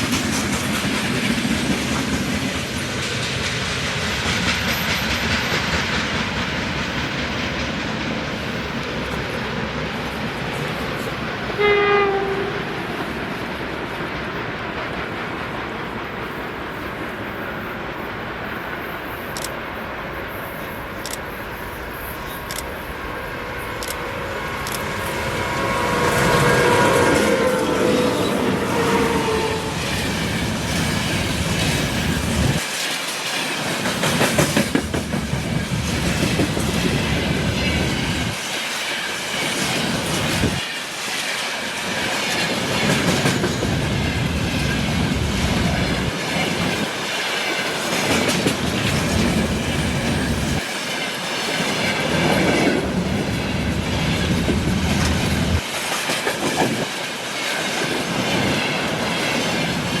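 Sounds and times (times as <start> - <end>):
railway cars clattering on rails: 0.0 - 19.6, 22.2 - 60.0.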